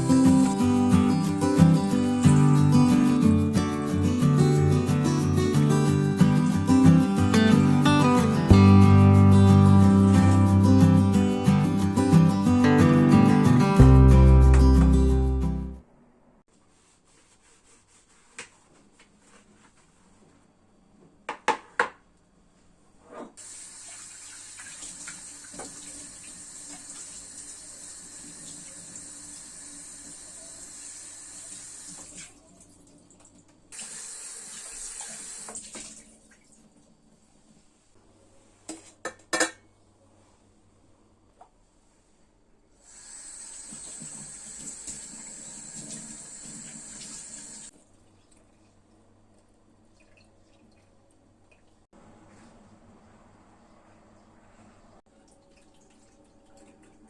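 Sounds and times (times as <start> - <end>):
tap running into a sink: 23.9 - 27.2, 34.5 - 36.0, 43.6 - 47.7.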